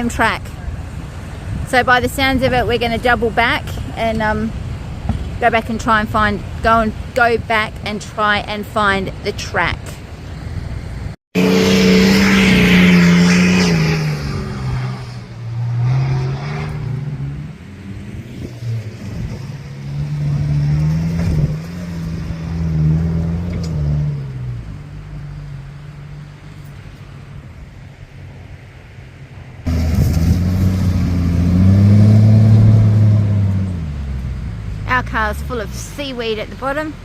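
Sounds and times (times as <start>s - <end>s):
car engine revving in sand: 11.4s - 26.7s, 29.6s - 36.1s.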